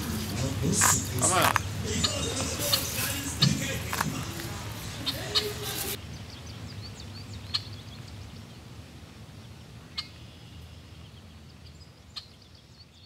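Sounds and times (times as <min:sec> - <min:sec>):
bird chirps: 0:00.0 - 0:08.6, 0:09.9 - 0:13.0.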